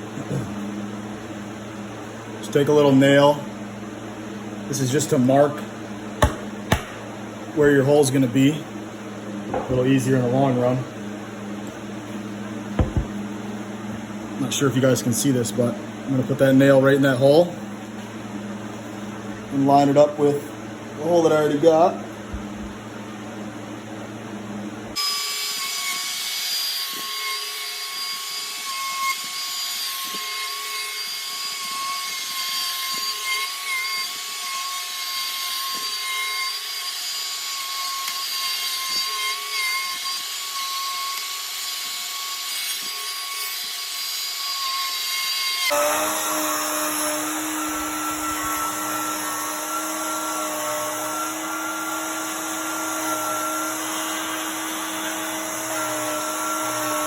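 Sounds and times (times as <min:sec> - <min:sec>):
light knocks: 0:12.8 - 0:13.2
router whining: 0:12.8 - 0:13.2, 0:36.8 - 0:57.0.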